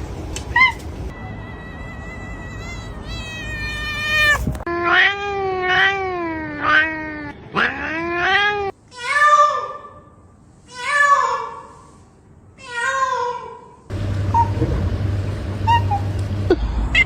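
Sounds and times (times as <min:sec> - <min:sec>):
cat yowling: 0:00.6 - 0:09.8
cat crying high-pitched: 0:00.6 - 0:10.0, 0:10.7 - 0:11.7, 0:12.6 - 0:13.7.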